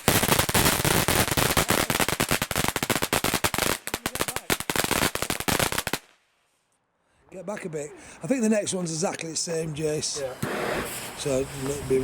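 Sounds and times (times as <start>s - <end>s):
firework fountain crackling: 0.0s - 6.2s, 9.8s - 12.0s.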